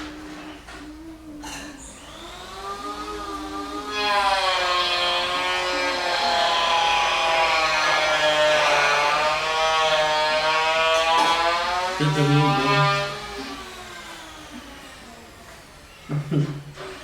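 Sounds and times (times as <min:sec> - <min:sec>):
hair dryer running: 0:01.9 - 0:15.5.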